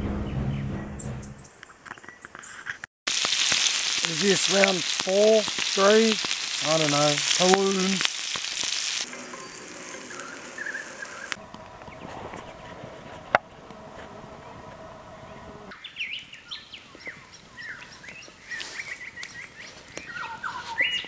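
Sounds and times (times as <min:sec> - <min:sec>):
cheese sizzling in a frying pan: 0:03.1 - 0:11.4
birds chirping: 0:03.2 - 0:12.8, 0:14.3 - 0:21.0.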